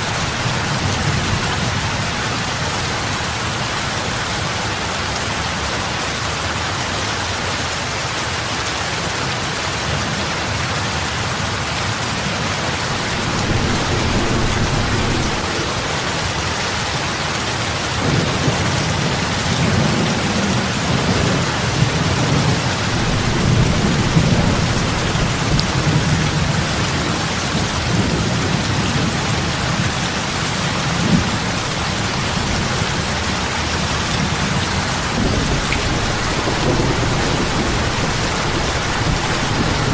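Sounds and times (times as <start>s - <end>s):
heavy rain on water: 0.0s - 39.9s
low rumble: 12.9s - 17.5s.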